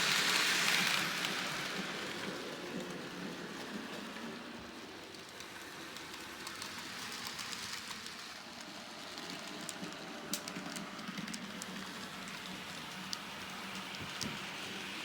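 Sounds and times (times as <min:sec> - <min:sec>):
model train rolling: 0:00.0 - 0:15.0.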